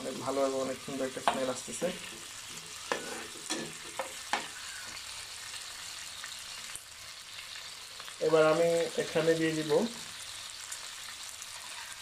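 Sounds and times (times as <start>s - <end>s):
vegetables sizzling in oil: 0.0s - 12.0s
spatula scraping a pan: 1.2s - 5.4s, 11.4s - 12.0s.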